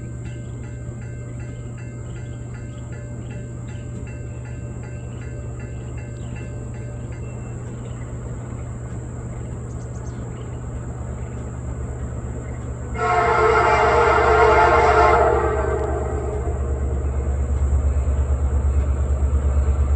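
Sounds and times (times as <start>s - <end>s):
train rumbling: 0.0s - 19.9s
locomotive air horn blast: 12.9s - 18.8s.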